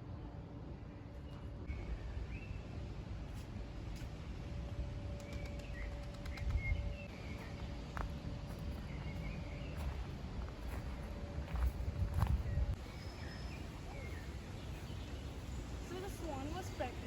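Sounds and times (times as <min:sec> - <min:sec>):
low outdoor rumble: 0:00.0 - 0:17.0
small birds chirping: 0:12.1 - 0:17.0.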